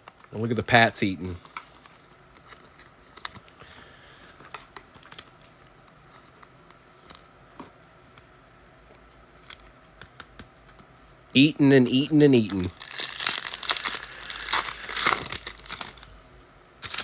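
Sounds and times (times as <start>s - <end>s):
low room hum: 0.0s - 17.0s
trading cards clicking and rustling: 9.4s - 10.9s, 12.3s - 16.1s.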